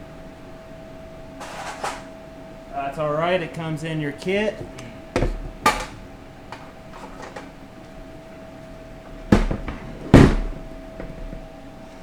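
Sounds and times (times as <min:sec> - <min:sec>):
heavy metal clunks on workbench: 0:04.6 - 0:06.0, 0:09.3 - 0:11.5.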